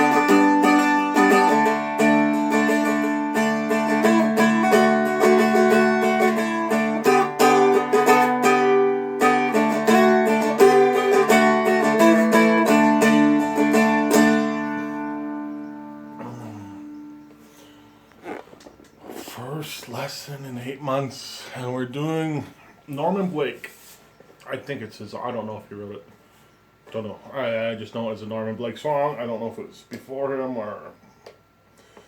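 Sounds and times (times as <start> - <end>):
flatpicked dulcimer melody: 0.0 - 17.2.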